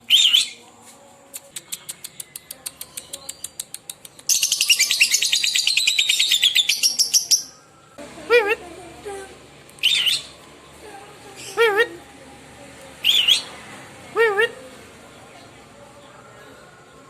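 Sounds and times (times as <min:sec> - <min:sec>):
lovebird chattering trill: 0:01.8 - 0:07.6, 0:09.8 - 0:10.3, 0:13.0 - 0:13.5
lovebird calling: 0:04.3 - 0:07.7, 0:09.8 - 0:10.4, 0:13.0 - 0:14.6.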